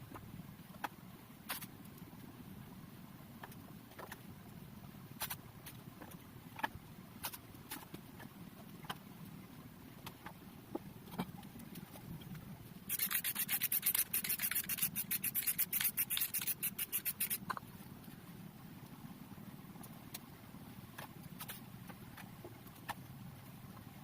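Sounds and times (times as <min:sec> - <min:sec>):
rubbing strokes on a surface: 0:12.9 - 0:17.5.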